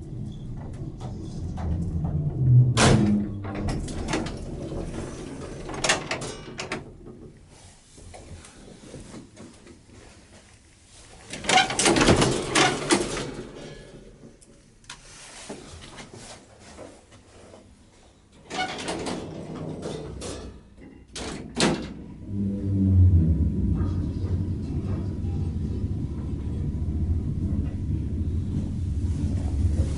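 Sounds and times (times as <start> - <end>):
lift drive humming and rumbling: 0.0 - 6.1, 21.9 - 29.9
lift doors clattering and scraping: 0.0 - 7.7, 11.2 - 14.4, 18.4 - 29.9.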